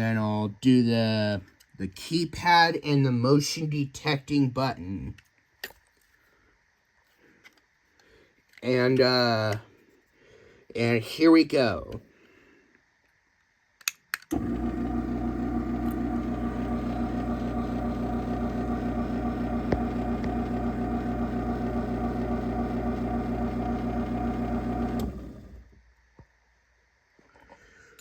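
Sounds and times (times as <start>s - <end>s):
garage door opener motor humming: 14.3s - 25.7s.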